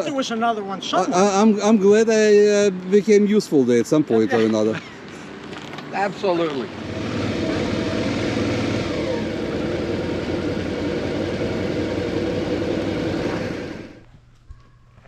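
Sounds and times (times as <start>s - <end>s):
motorcycle engine running: 6.7s - 14.0s.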